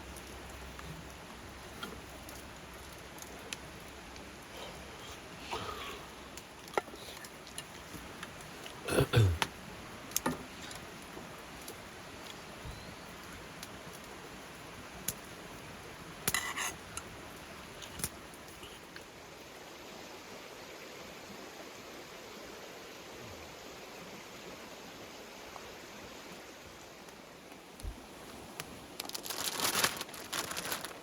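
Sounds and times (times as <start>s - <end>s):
low background hiss: 0.0s - 31.0s.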